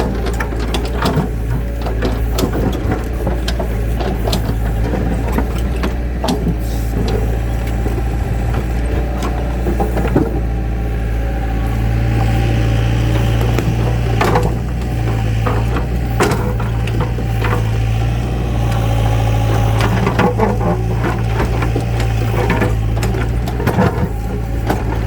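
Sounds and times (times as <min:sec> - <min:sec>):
engine humming: 0:00.0 - 0:25.0
knocks and clatter: 0:00.0 - 0:25.0.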